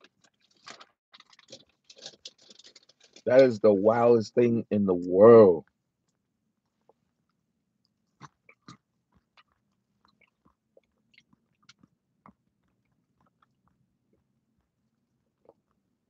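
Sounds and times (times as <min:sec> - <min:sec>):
person chewing: 0:08.0 - 0:13.8.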